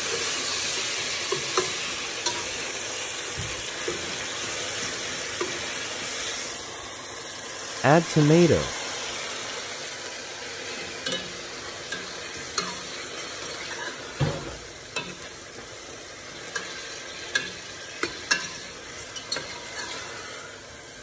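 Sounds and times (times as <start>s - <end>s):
tomatoes sizzling in hot oil: 0.0s - 21.0s
metal spatula scraping a pot: 13.6s - 14.1s, 19.2s - 20.5s.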